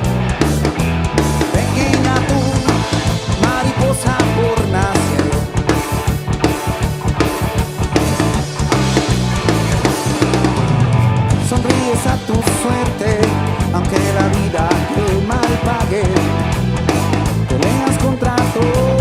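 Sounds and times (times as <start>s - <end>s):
rock music with guitar and drums: 0.0s - 19.0s.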